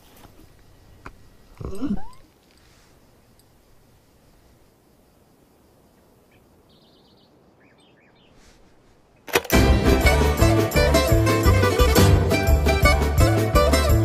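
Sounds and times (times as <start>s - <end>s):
faint background ambience: 0.0s - 9.6s
faint bird chirps and trill: 1.6s - 2.3s, 6.2s - 8.4s.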